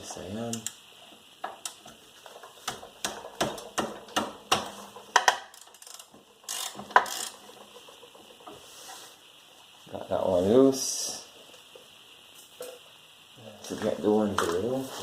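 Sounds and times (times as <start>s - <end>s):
hand ratchet clicking: 5.0s - 8.4s.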